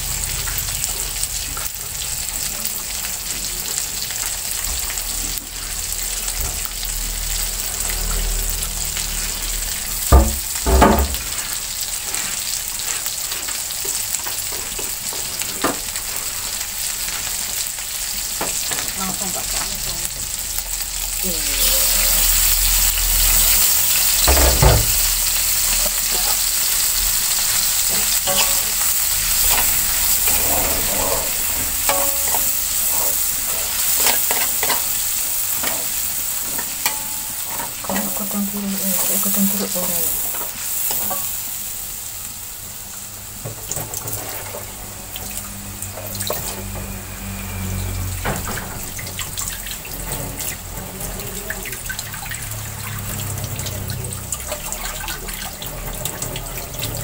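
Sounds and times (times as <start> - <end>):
spice paste sizzling in wok: 0.0 - 57.0
sharp knocks: 10.1 - 11.2.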